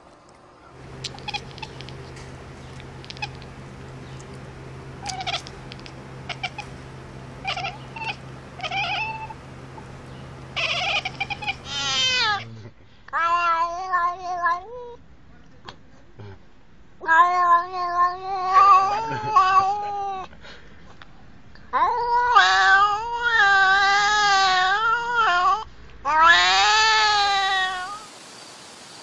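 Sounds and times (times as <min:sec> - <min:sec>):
steady low hum: 0:00.7 - 0:12.9
cat meowing and yowling: 0:00.9 - 0:02.0, 0:05.0 - 0:06.6, 0:07.4 - 0:09.4, 0:10.5 - 0:12.4, 0:21.8 - 0:28.1.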